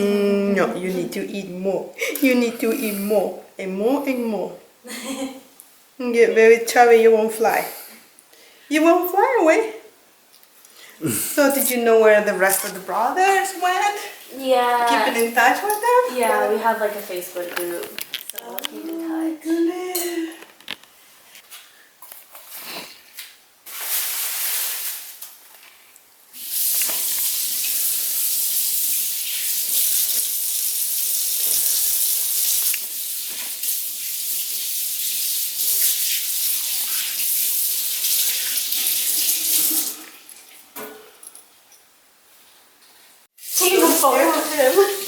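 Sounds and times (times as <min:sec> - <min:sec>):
tap water running into sink: 0:26.4 - 0:40.6, 0:43.4 - 0:45.0.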